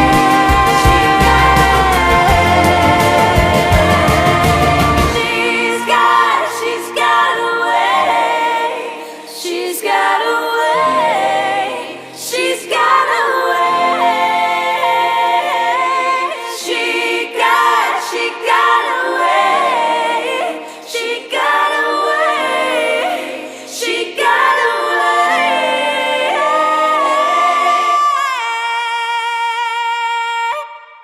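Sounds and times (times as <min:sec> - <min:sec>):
sustained low notes: 0:00.0 - 0:05.8
wordless choir-like singing: 0:00.0 - 0:31.0.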